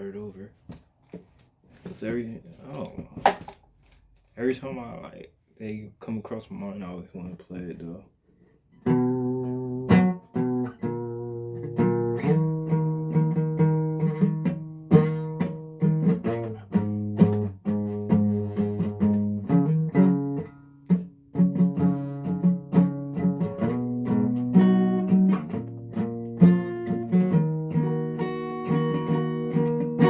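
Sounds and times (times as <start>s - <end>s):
guitar strumming chords: 8.8s - 30.0s.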